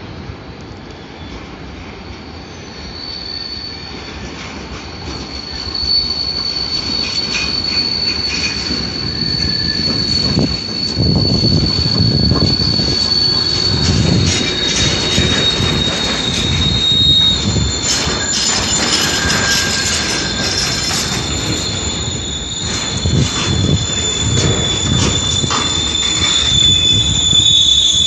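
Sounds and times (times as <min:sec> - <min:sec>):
freight train passing: 0:00.0 - 0:28.0
high wheel squeal: 0:02.0 - 0:28.0
wagons rumbling and clattering: 0:07.0 - 0:28.0.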